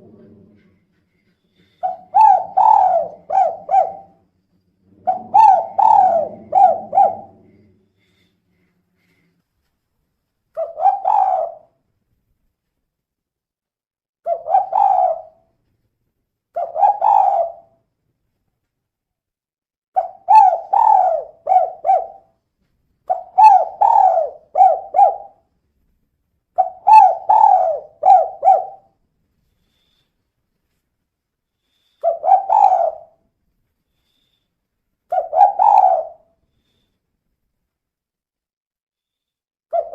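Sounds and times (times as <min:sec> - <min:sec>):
dove cooing: 0:01.6 - 0:04.2, 0:04.9 - 0:08.2, 0:10.6 - 0:11.7, 0:14.3 - 0:15.4, 0:16.6 - 0:17.7, 0:20.0 - 0:22.3, 0:23.1 - 0:25.4, 0:26.6 - 0:29.0, 0:32.0 - 0:33.2, 0:35.1 - 0:36.3.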